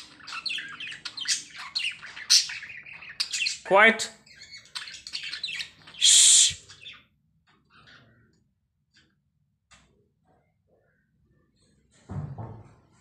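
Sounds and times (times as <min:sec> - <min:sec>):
lovebirds chattering: 0:00.0 - 0:07.0
person shushing: 0:06.0 - 0:06.6.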